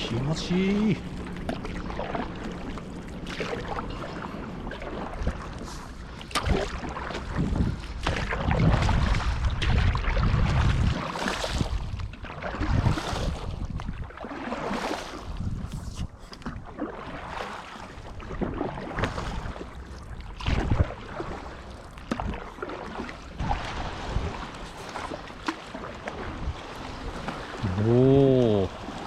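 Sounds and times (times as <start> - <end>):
seawater sloshing and lapping: 0.0 - 29.0
wind buffeting microphone: 6.4 - 14.1, 15.2 - 16.2.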